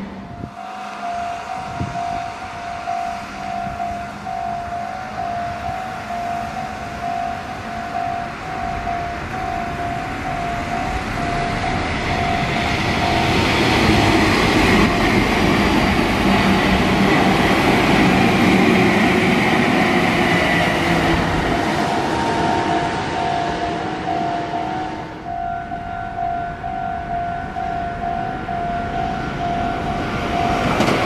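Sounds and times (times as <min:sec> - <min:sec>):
electric train passing: 0:00.0 - 0:31.0
level crossing bell ringing: 0:00.2 - 0:13.8, 0:21.3 - 0:30.9.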